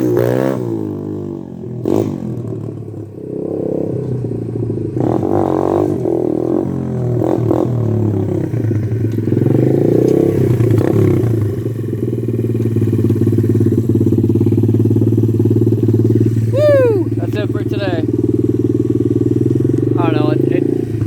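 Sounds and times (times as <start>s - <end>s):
motorbike engine revving and idling: 0.0s - 21.0s.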